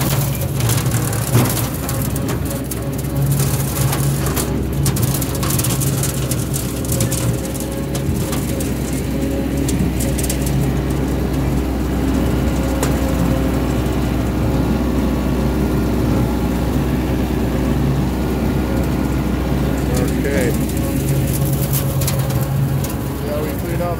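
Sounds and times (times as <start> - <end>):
light rattles and clicks: 0.0 - 13.7, 19.6 - 23.9
tractor engine running: 0.0 - 23.9.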